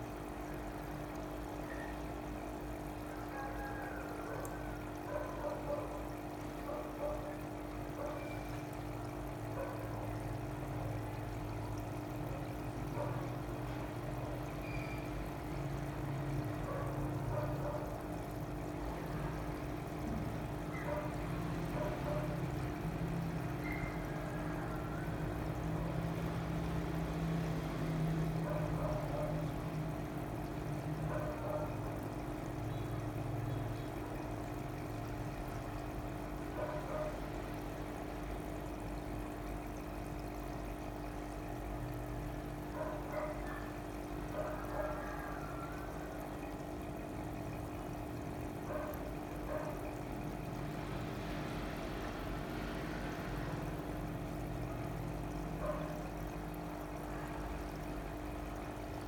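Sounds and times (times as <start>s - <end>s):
water pouring and trickling: 0.0s - 59.0s.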